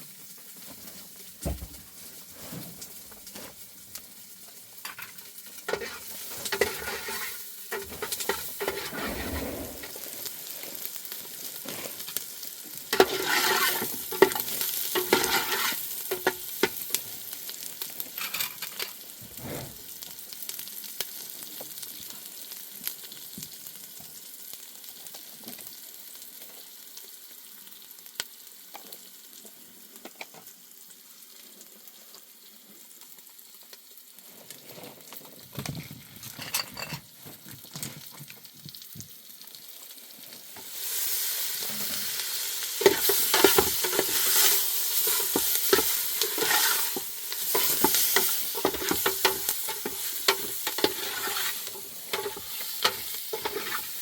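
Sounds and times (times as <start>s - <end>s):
crackling hiss with sharp ticks: 0.0s - 34.6s.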